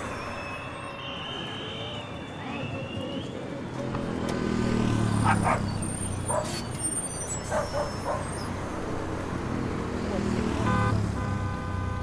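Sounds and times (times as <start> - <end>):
dog barking: 5.2 - 5.7, 7.5 - 8.3.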